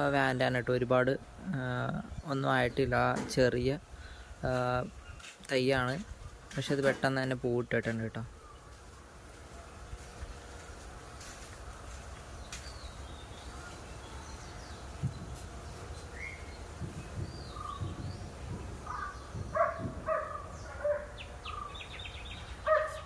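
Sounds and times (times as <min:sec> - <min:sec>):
birds chirping: 0:00.0 - 0:23.0
dog barking: 0:18.9 - 0:21.2, 0:22.6 - 0:23.0.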